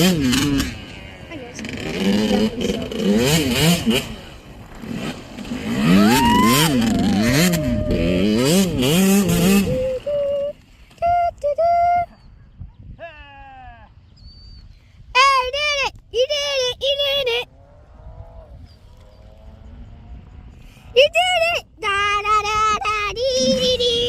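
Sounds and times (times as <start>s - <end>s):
dirt bike engine revving: 0.0s - 10.2s, 17.4s - 22.2s, 23.3s - 24.0s.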